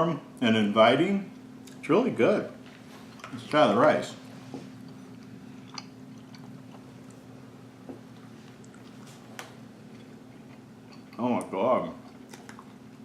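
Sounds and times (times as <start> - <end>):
steady low hum: 0.0 - 13.0
man chewing: 4.2 - 13.0.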